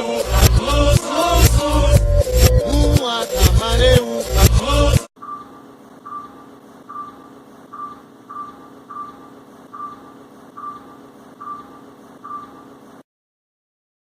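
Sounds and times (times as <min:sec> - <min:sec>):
steady low hum: 0:05.2 - 0:13.0.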